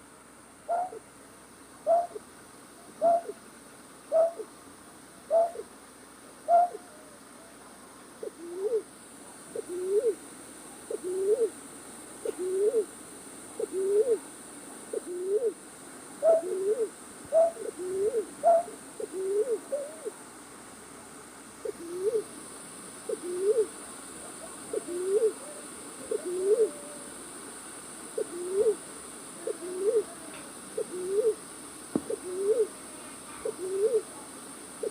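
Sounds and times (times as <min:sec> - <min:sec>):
night bird hooting call: 0:00.7 - 0:01.0, 0:01.8 - 0:02.2, 0:03.0 - 0:03.4, 0:04.1 - 0:04.5, 0:05.3 - 0:05.7, 0:06.4 - 0:07.2, 0:08.2 - 0:08.9, 0:09.5 - 0:10.2, 0:10.9 - 0:11.6, 0:12.2 - 0:12.9, 0:13.6 - 0:14.2, 0:14.9 - 0:15.6, 0:16.2 - 0:20.2, 0:21.6 - 0:22.3, 0:23.1 - 0:23.7, 0:24.3 - 0:27.1, 0:28.2 - 0:28.8, 0:29.4 - 0:30.2, 0:30.8 - 0:31.4, 0:32.1 - 0:32.7, 0:33.4 - 0:34.1.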